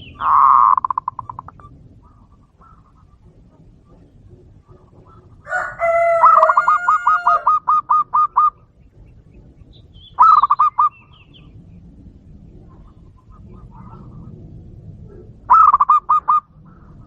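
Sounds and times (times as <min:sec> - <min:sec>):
bird calling loudly: 0:00.0 - 0:11.6, 0:15.1 - 0:17.0.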